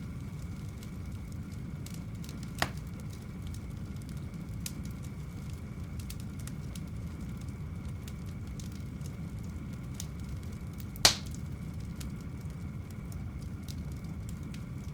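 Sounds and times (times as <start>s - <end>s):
low fire rumble: 0.0s - 14.9s
wood fire crackling: 0.0s - 14.9s
loud fire pop: 2.6s - 2.8s, 11.0s - 11.4s.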